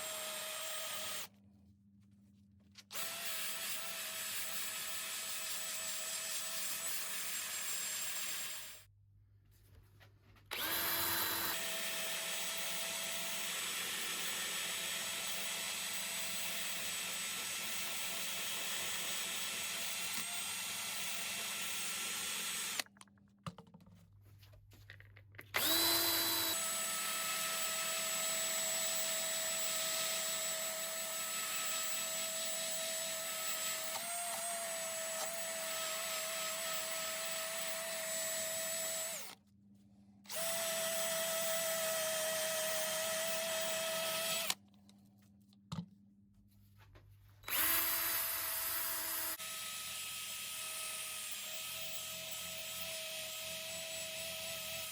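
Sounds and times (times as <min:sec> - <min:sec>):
power tool motor whining: 0:10.5 - 0:22.8, 0:25.5 - 0:39.4, 0:40.3 - 0:44.6, 0:47.4 - 0:54.9.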